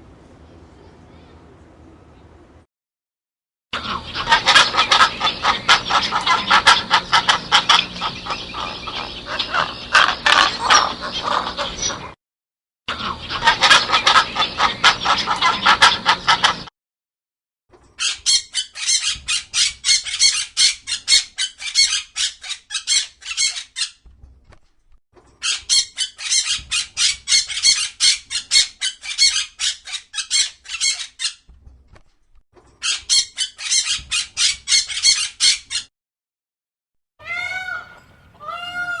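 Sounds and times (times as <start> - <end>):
bird chattering call: 3.8 - 12.1, 37.2 - 39.0.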